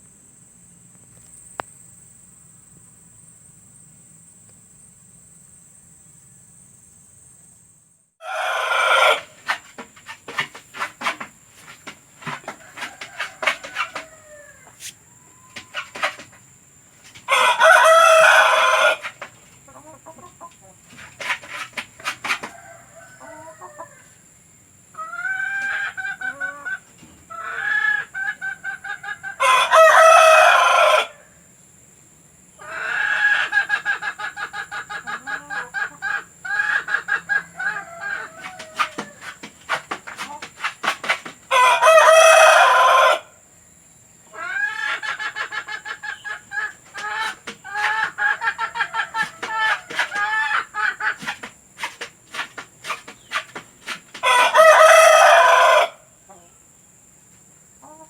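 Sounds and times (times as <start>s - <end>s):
rooster crowing: 8.2s - 9.4s, 12.3s - 15.9s, 17.3s - 19.2s, 22.3s - 24.1s, 27.4s - 31.3s, 36.6s - 39.4s, 41.5s - 43.4s, 54.2s - 56.0s
hens clucking: 8.2s - 24.2s, 25.0s - 31.1s, 32.6s - 43.3s, 44.3s - 56.5s.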